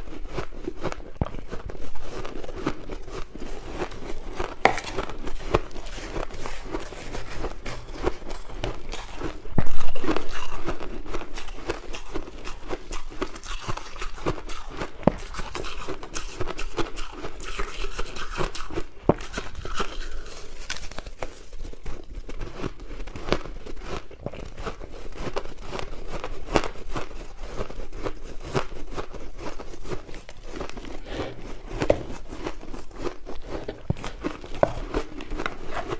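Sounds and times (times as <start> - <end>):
crushed ice crunching: 1.2 - 16.4, 27.1 - 35.9.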